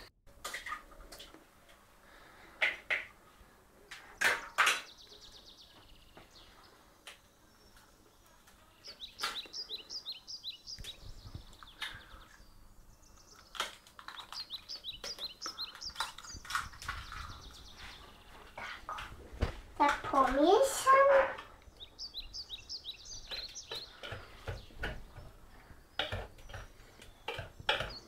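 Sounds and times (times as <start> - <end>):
rapid high chirping twitter: 8.8 - 12.4, 13.0 - 18.3, 21.7 - 24.6.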